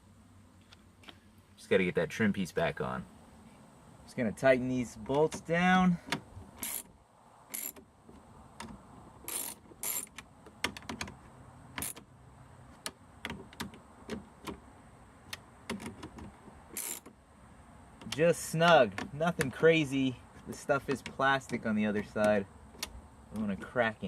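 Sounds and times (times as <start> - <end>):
ratchet wrench clicking: 6.6 - 6.9, 7.5 - 7.8, 9.3 - 10.2, 16.8 - 17.1.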